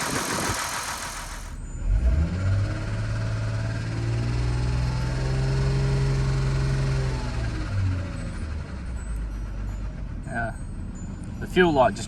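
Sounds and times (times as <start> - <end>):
car engine running: 0.0 - 1.7.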